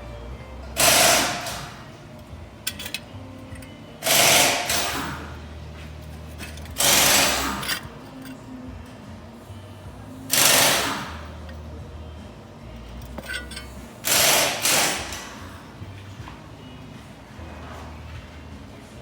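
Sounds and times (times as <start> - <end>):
power tool bursts: 0.8 - 1.8, 4.0 - 5.3, 6.8 - 7.7, 10.3 - 11.2, 13.3 - 15.4.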